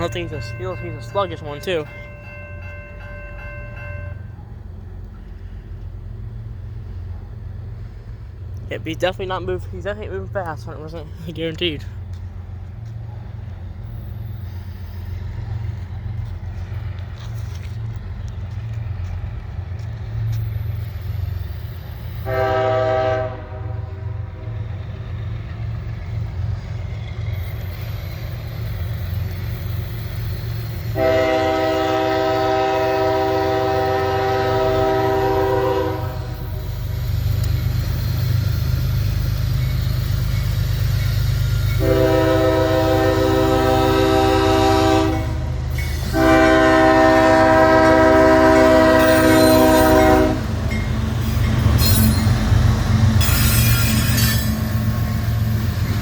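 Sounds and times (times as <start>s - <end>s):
low rumble of train: 0.0s - 56.0s
train horn blasts: 22.2s - 24.6s, 30.9s - 36.6s, 41.8s - 50.6s.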